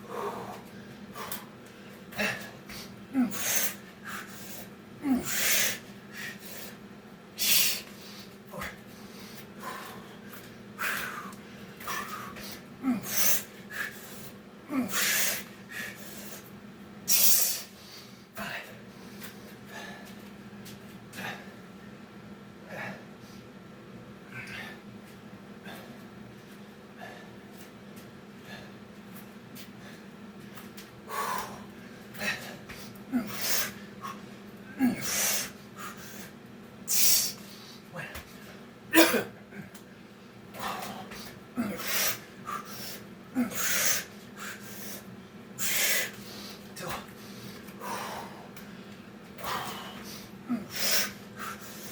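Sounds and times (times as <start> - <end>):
man breathing hard: 0.0 - 6.8, 7.4 - 16.5, 17.1 - 20.3, 26.9 - 27.4, 31.0 - 38.6, 39.6 - 51.9
man grunting: 5.0 - 5.5, 12.8 - 13.4, 14.7 - 15.2, 46.8 - 47.1.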